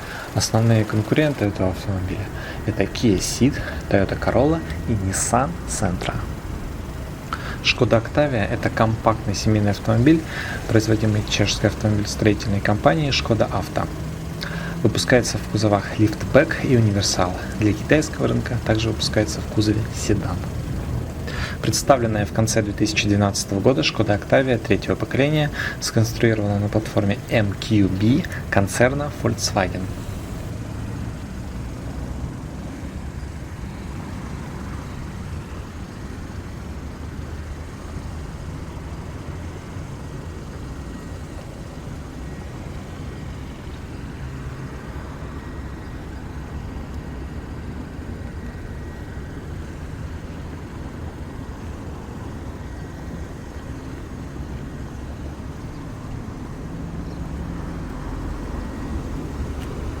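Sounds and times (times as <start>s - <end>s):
low background rumble: 0.0s - 44.1s.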